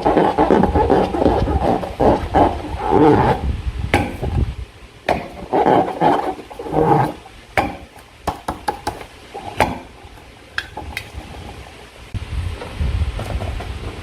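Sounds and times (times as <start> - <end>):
slime being stirred: 0.0 - 3.4.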